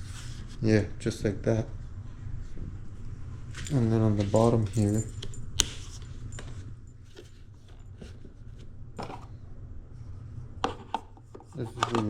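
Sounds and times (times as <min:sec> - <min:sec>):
plastic handling knocks and rubs: 0:10.6 - 0:12.0.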